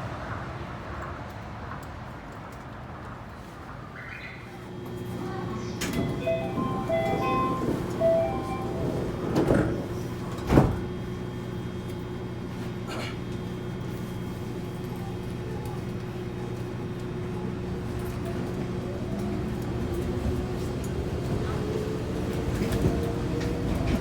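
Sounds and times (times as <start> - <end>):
train equipment humming: 4.7 - 13.7
door chime: 5.8 - 9.7
train doors knocking shut: 5.8 - 10.9.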